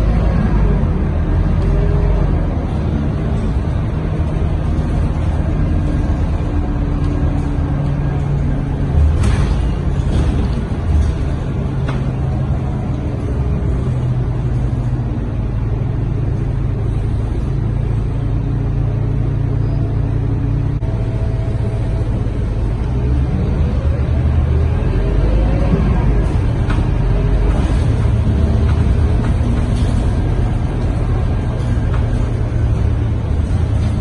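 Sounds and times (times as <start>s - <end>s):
bus diesel engine rumbling: 0.0s - 34.0s.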